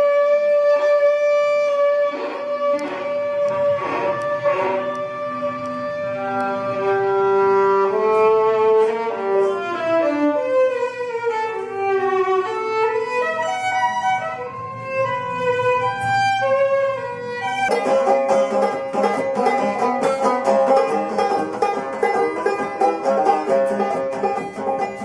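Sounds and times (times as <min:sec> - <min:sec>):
solo violin slow melody: 0:00.0 - 0:25.0.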